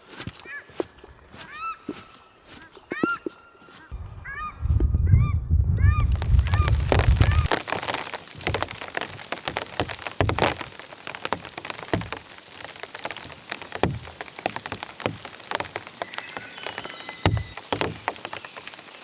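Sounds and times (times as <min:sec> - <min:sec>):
large raindrops hitting: 0:03.9 - 0:19.0
heavy rain: 0:05.5 - 0:19.0.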